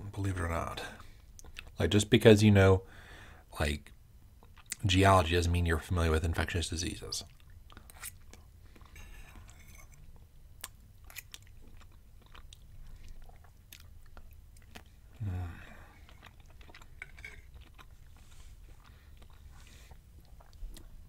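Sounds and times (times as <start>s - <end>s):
close-up chewing: 1.0s - 1.8s, 4.4s - 4.8s, 7.2s - 21.0s
short low vocal sound: 15.2s - 15.9s.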